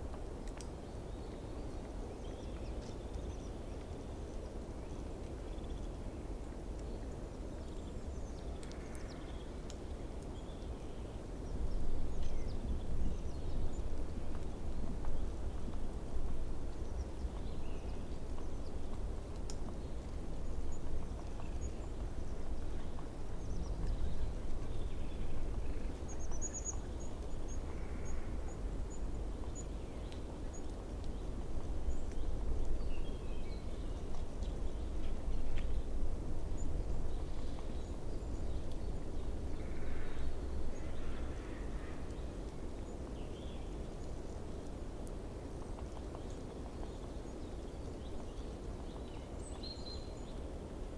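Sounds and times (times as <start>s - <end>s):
distant birdsong: 36.5s - 44.2s.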